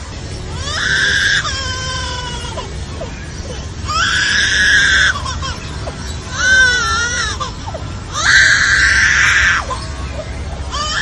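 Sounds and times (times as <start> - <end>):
bird wailing call: 0.6 - 11.0.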